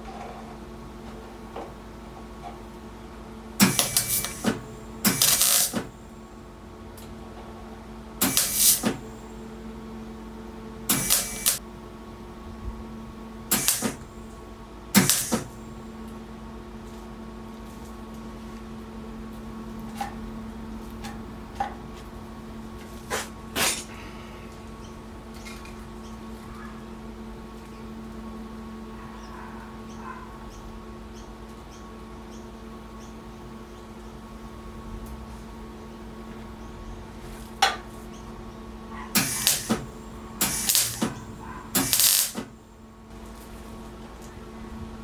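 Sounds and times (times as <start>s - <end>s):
steady hum: 0.0s - 45.0s
welding crackling sizzle: 3.6s - 6.0s, 8.2s - 9.2s, 10.9s - 11.6s, 13.4s - 14.4s, 15.0s - 16.2s, 39.2s - 42.6s.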